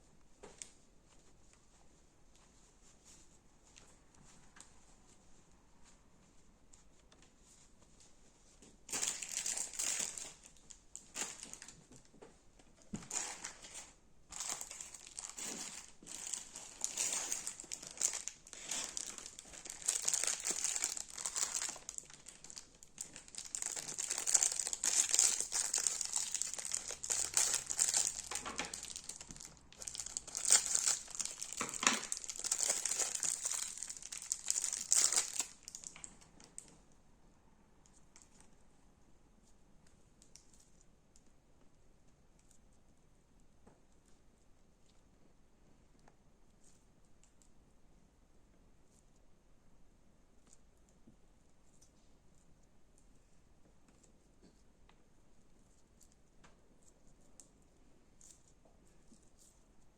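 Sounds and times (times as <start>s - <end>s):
crunchy slime crackling: 8.9s - 11.8s, 13.0s - 36.6s.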